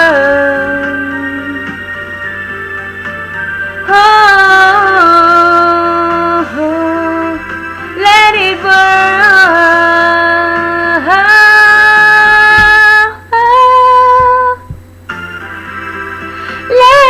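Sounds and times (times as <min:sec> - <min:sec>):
woman singing long held notes: 0:00.0 - 0:01.8, 0:03.9 - 0:14.8, 0:16.6 - 0:17.0.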